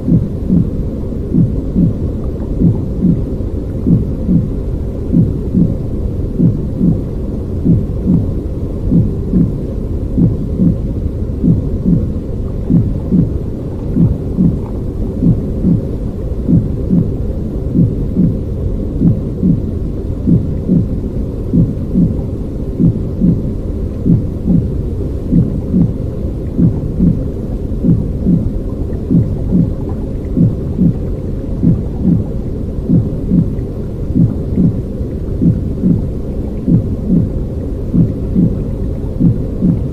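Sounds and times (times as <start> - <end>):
muffled low rumbling with soft beat: 0.0 - 39.9.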